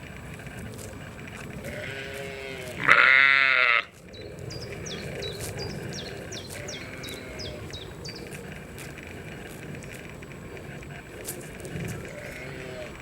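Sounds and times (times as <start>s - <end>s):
outdoor background hiss: 0.0s - 13.0s
loud bleat: 1.6s - 3.9s, 6.5s - 7.6s, 12.1s - 13.0s
bird high chirps: 3.9s - 8.5s.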